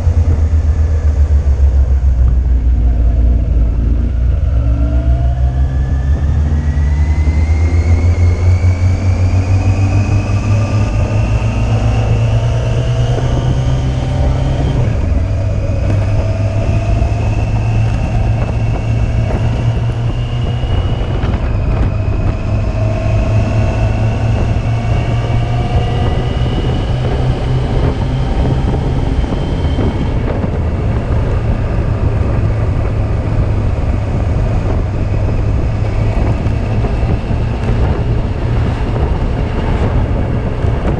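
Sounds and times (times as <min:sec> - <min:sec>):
motorcycle engine accelerating: 0:00.0 - 0:40.9
wind rush on microphone: 0:00.0 - 0:40.9.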